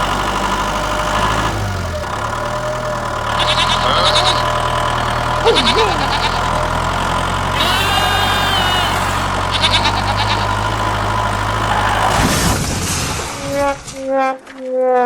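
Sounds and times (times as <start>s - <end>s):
engine idling: 0.0s - 12.4s.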